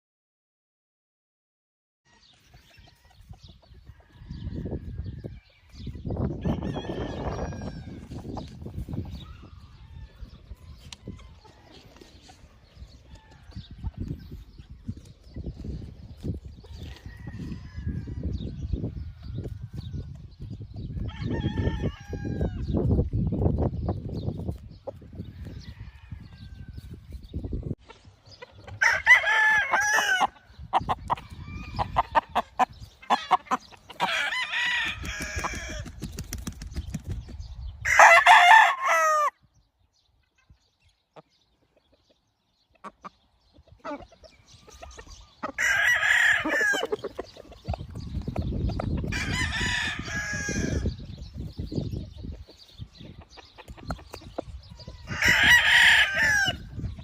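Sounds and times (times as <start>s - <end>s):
roosters crowing: 2.1s - 14.4s, 16.2s - 20.1s, 20.8s - 22.9s, 25.2s - 27.0s, 28.6s - 36.1s, 37.8s - 39.4s, 44.6s - 48.3s, 48.9s - 51.2s, 54.6s - 57.0s.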